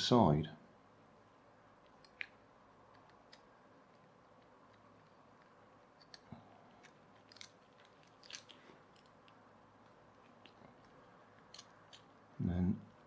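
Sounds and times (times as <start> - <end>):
plastic toy parts clicking: 1.9 - 9.4, 10.2 - 12.2.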